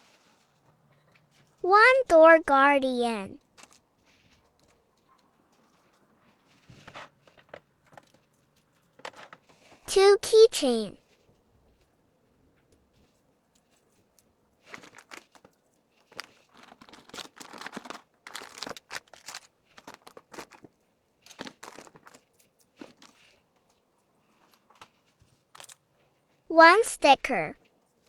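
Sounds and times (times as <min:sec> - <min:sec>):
packaging crinkling and rustling: 0:13.0 - 0:25.9.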